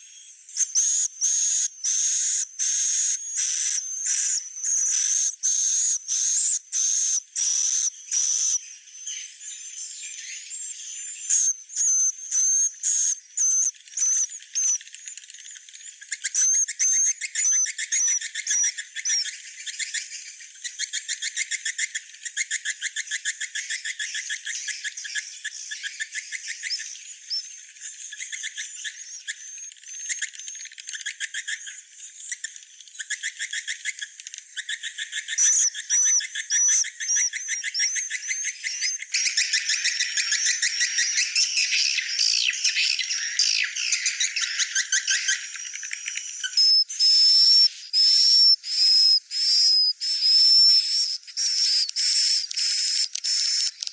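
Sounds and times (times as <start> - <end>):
high whistled chirps: 34.6 - 53.9.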